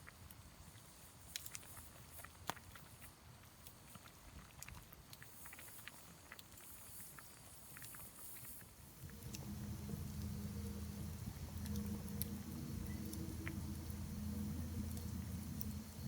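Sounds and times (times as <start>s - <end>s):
campfire crackling and popping: 0.0s - 16.0s
low steady hum: 8.8s - 16.0s.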